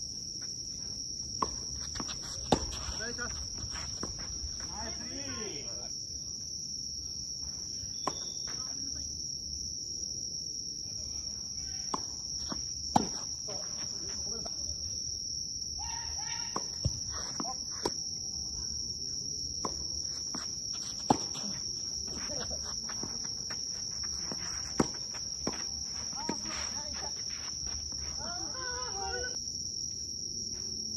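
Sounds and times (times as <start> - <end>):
insects droning: 0.0 - 30.9
tennis ball hits: 1.4 - 5.0, 8.0 - 8.6, 11.8 - 13.9, 19.6 - 23.8, 24.6 - 26.6.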